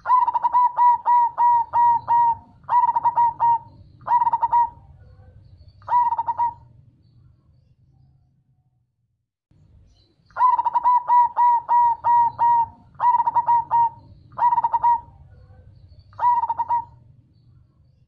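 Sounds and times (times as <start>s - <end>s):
dove cooing: 0.0s - 6.8s, 10.3s - 17.2s.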